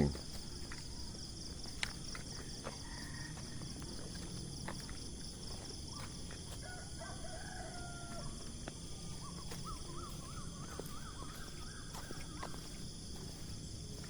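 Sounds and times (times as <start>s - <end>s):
insects trilling: 0.0s - 14.0s
rooster crowing: 2.6s - 4.0s, 6.5s - 12.7s.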